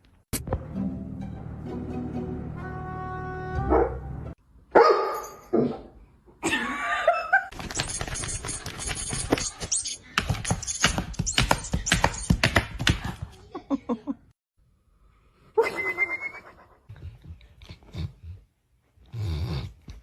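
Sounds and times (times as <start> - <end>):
dog claws clattering on hard floor: 7.5 - 13.1.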